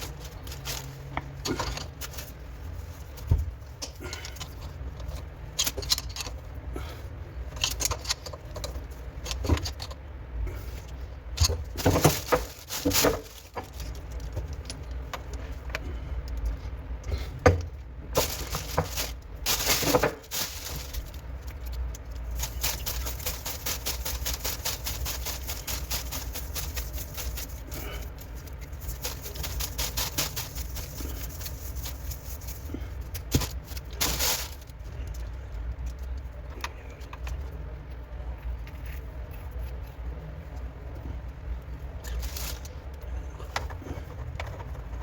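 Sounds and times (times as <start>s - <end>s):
metal parts clinking and rattling: 4.2s - 6.4s, 7.5s - 10.0s.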